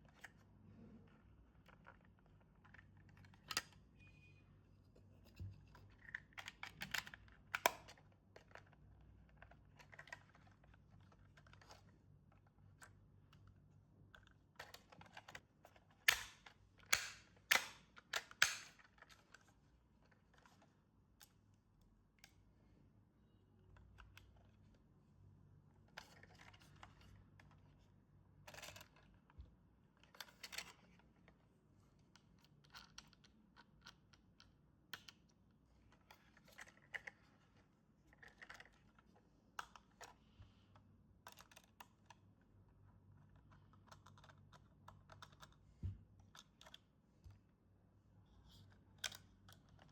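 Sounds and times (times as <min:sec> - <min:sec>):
toy packaging clicks and rustles: 0:05.9 - 0:12.8, 0:36.0 - 0:40.2.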